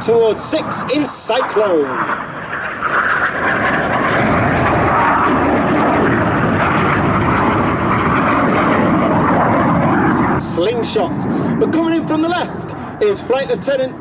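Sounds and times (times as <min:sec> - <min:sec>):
jets flying past: 0:00.0 - 0:14.0.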